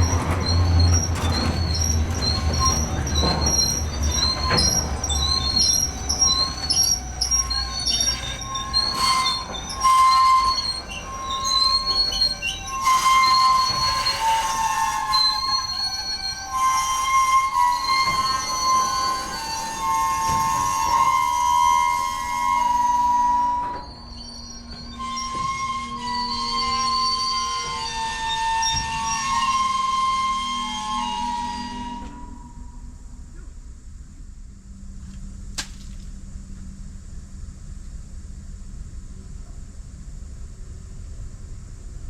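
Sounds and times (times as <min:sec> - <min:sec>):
train wheels squealing: 0:00.0 - 0:33.5.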